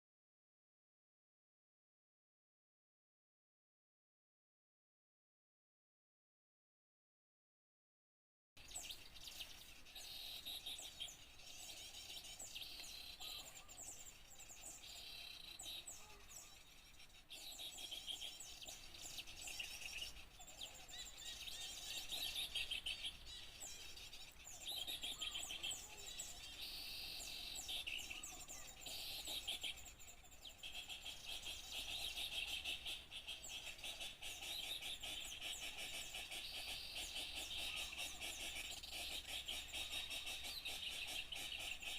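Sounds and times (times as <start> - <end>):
songbirds chirping chorus: 8.6 - 41.9.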